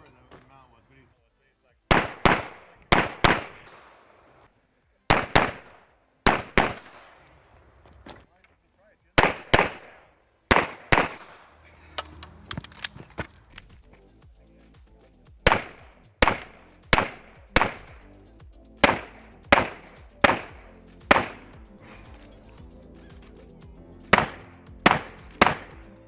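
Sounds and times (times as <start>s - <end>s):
faint background music: 0.0s - 26.0s
handgun shots: 1.9s - 4.2s, 5.1s - 7.6s, 9.2s - 13.7s, 15.5s - 18.1s, 18.8s - 21.6s, 24.1s - 25.9s.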